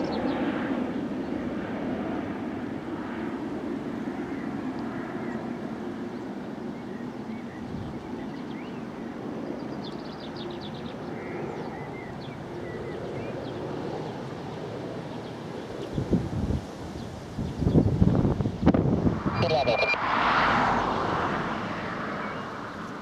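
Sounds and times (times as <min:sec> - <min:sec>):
distant jet engines rumbling: 0:00.0 - 0:23.0
birds chirping: 0:04.2 - 0:16.1, 0:19.3 - 0:20.0, 0:21.7 - 0:23.0
wind gust on microphone: 0:15.8 - 0:22.5.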